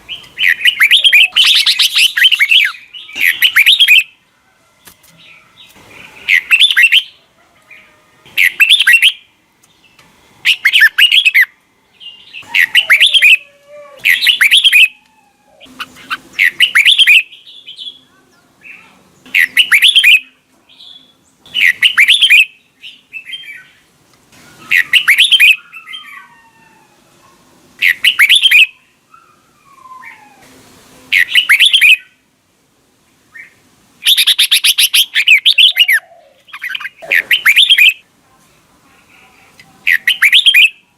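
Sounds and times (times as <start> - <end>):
bird singing warbled phrases: 0.0 - 4.2, 5.3 - 23.9, 24.5 - 26.3, 27.8 - 30.3, 31.1 - 32.2, 33.3 - 38.1, 39.6 - 40.9
bird gliding calls: 12.4 - 17.2, 33.4 - 38.0.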